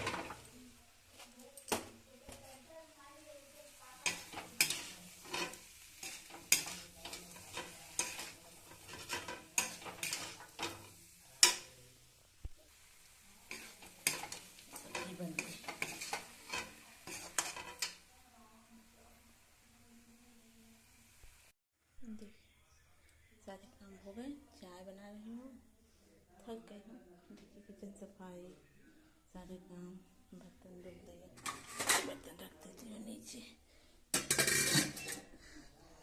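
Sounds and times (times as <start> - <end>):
metal spoon scraping a pan: 0.0 - 2.5, 3.9 - 11.8, 13.3 - 18.1, 31.4 - 32.3, 34.2 - 35.4.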